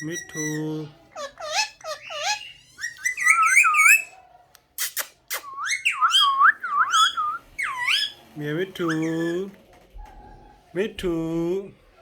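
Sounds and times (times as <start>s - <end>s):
parrot squawks: 0.0s - 4.2s, 5.3s - 8.2s.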